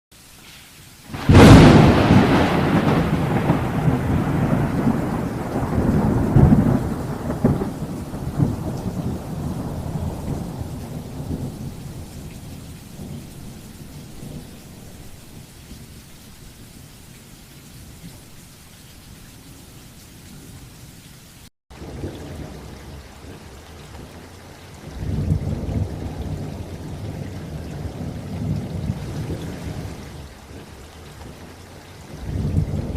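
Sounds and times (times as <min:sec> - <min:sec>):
steady rain: 0:00.1 - 0:32.9
thunder rumbling: 0:01.1 - 0:16.0, 0:21.7 - 0:32.9.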